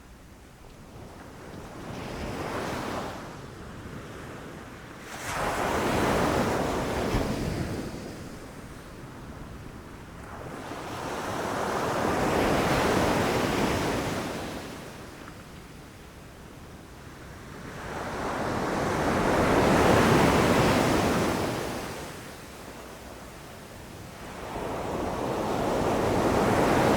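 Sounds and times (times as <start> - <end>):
ocean waves breaking on shore: 5.0 - 15.2, 24.1 - 26.9.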